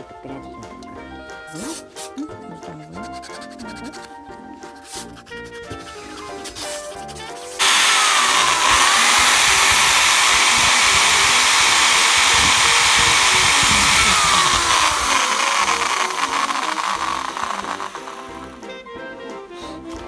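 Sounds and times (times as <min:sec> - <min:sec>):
electric drill motor whirring: 0:07.6 - 0:18.8.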